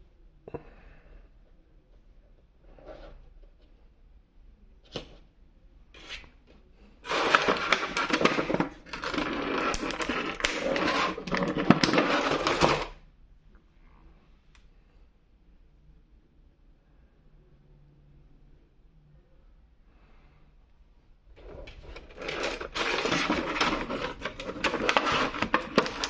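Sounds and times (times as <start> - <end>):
plastic and cardboard crackling: 7.0 - 12.9, 21.4 - 26.0.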